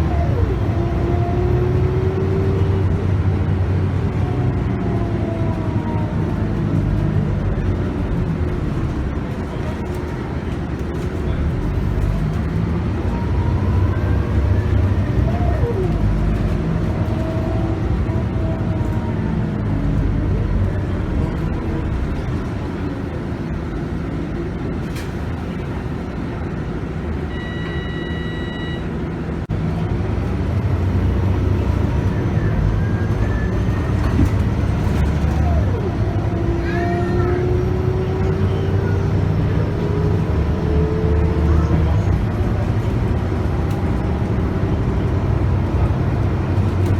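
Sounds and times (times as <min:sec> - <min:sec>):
bus diesel engine running: 0:00.0 - 0:46.9
short electronic beep: 0:27.3 - 0:28.9.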